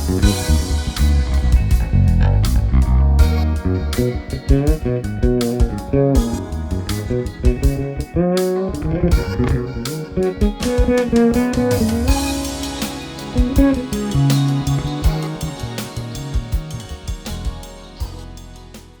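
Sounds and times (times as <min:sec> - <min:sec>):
fretless bass sliding notes: 0:00.0 - 0:19.0
sharp percussive hits: 0:09.1 - 0:19.0.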